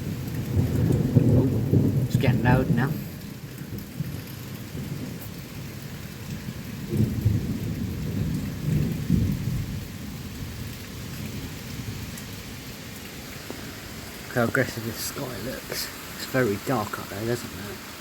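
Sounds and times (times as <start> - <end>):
rumbling thunder: 0.0 - 12.7
heavy rain pouring: 0.0 - 18.0.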